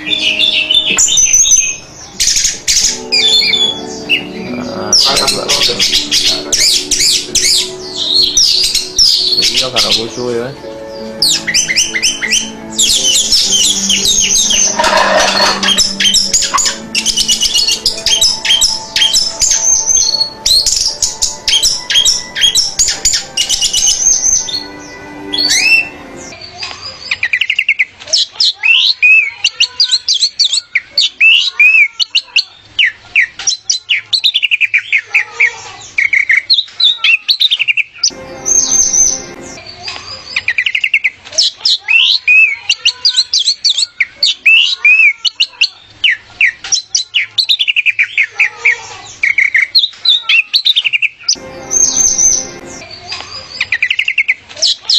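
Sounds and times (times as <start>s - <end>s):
thrush singing: 0.0s - 26.4s, 38.1s - 39.9s, 51.3s - 53.6s.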